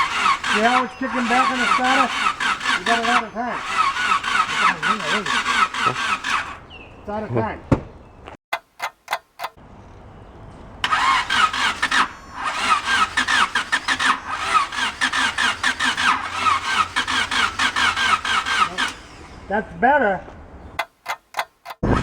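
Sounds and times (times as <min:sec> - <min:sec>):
engine cranking on starter motor: 0:00.0 - 0:06.8, 0:10.8 - 0:19.8, 0:21.1 - 0:22.0
sharp clicks: 0:08.5 - 0:09.6, 0:20.8 - 0:21.8.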